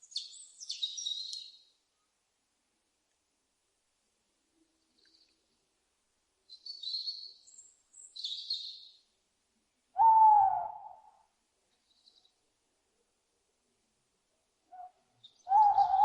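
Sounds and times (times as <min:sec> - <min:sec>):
loud owl hoot: 0:10.0 - 0:11.2, 0:14.7 - 0:16.0.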